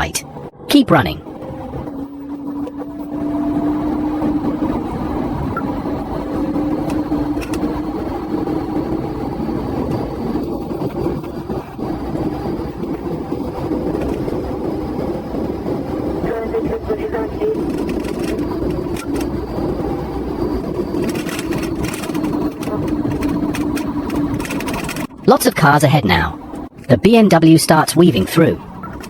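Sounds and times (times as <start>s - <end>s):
car engine at speed: 0.0s - 16.2s
road noise: 0.0s - 29.0s.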